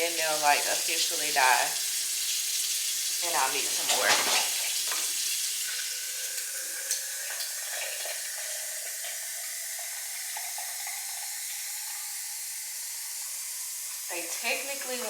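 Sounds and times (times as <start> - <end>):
tap running into sink: 3.4 - 12.0.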